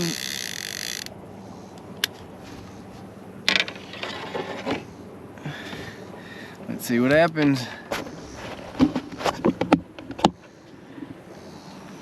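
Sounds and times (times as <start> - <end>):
fishing reel clicker buzzing: 0.0 - 1.1
reel being handled clicks: 0.0 - 1.1.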